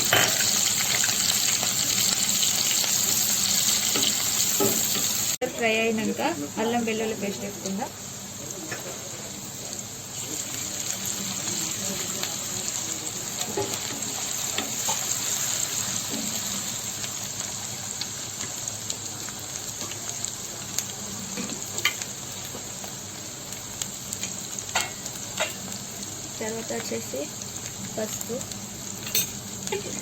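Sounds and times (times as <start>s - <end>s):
food sizzling in hot oil: 0.0s - 30.0s.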